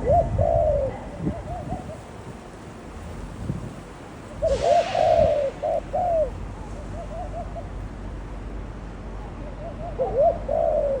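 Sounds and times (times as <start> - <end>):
doves cooing: 0.0 - 2.0, 4.4 - 6.4, 9.6 - 11.0.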